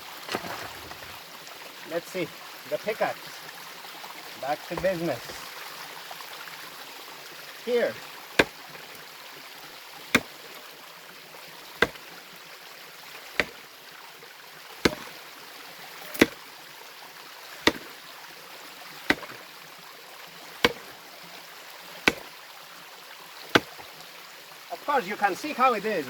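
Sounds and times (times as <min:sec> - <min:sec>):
mountain stream rushing: 0:00.0 - 0:16.7, 0:17.3 - 0:26.0
pickaxe striking rock: 0:04.7 - 0:05.2, 0:08.4 - 0:08.7, 0:10.1 - 0:10.4, 0:11.8 - 0:12.0, 0:13.4 - 0:13.6, 0:14.8 - 0:15.2, 0:16.1 - 0:16.4, 0:17.6 - 0:18.0, 0:19.1 - 0:19.4, 0:20.6 - 0:20.9, 0:22.0 - 0:22.3, 0:23.5 - 0:23.9.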